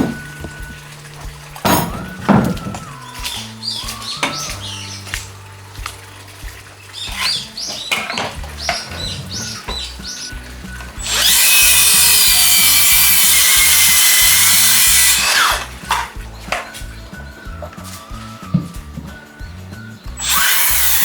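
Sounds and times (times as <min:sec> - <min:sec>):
power tool running: 0:00.0 - 0:03.0, 0:08.6 - 0:16.1, 0:20.2 - 0:21.0
background music: 0:00.0 - 0:21.0.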